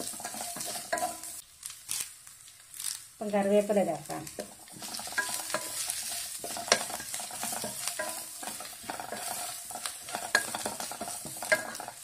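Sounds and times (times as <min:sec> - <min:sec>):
wooden spatula scraping a pan: 0:00.0 - 0:01.4, 0:04.3 - 0:12.0
vegetables sizzling in hot oil: 0:00.0 - 0:12.0.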